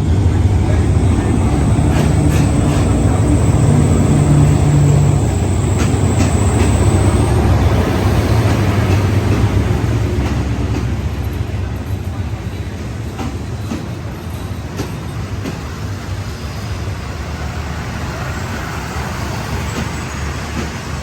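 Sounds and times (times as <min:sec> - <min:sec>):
thin high whine: 0:00.0 - 0:08.2
train engine rumbling: 0:00.0 - 0:21.0
sharp clicks: 0:01.1 - 0:07.3.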